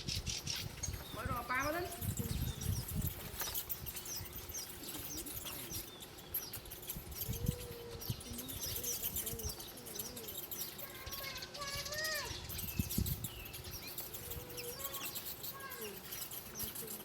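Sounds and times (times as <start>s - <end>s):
low thumps and rustles: 0.0s - 11.3s
small birds chirping: 0.0s - 17.0s.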